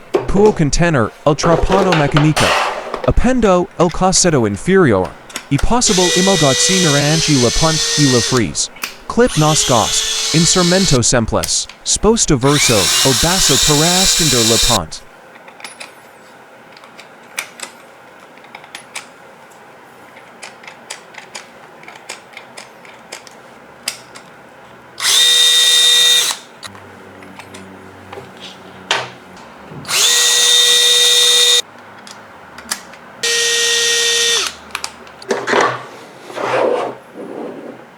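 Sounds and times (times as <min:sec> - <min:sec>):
tool handling clicks and knocks: 0:01.4 - 0:03.2, 0:05.0 - 0:09.1
cordless drill whining: 0:05.6 - 0:08.6, 0:09.2 - 0:11.6, 0:12.4 - 0:14.9, 0:25.0 - 0:26.4, 0:29.9 - 0:31.6, 0:33.2 - 0:34.6.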